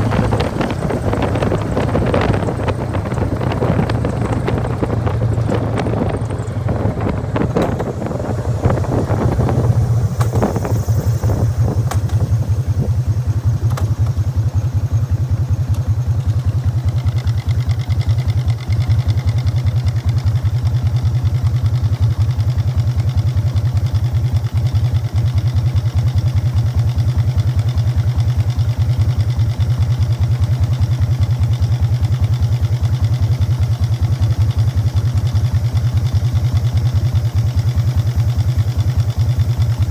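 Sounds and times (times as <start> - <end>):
wind rush: 0.0 - 13.2
primary drive rattle: 0.0 - 15.9
motorcycle engine idling: 0.0 - 39.9.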